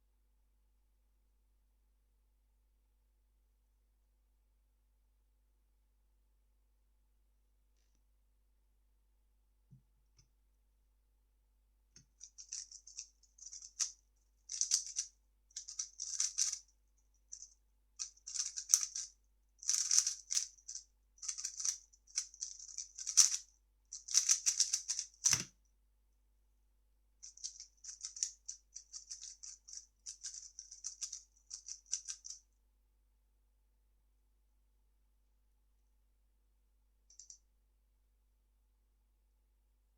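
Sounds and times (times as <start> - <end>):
plastic puzzle cube turning clatter: 14.5 - 16.6, 17.4 - 23.4, 24.0 - 25.5, 27.3 - 32.4.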